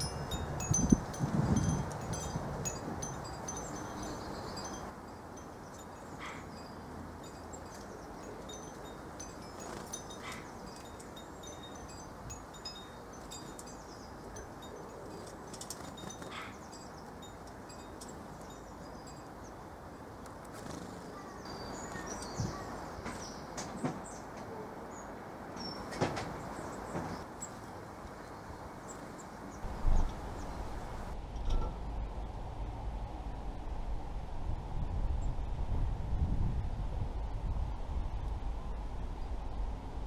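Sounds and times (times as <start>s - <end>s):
faint outdoor hiss: 0.0s - 40.0s
small birds calling: 5.5s - 31.1s.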